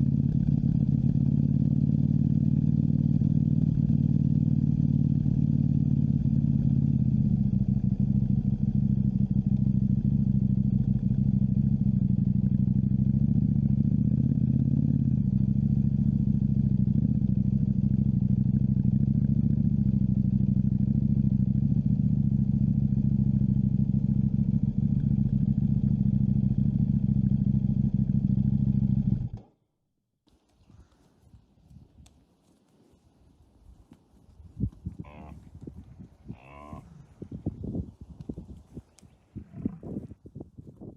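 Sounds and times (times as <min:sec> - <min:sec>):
motorcycle engine running: 0:00.0 - 0:29.6.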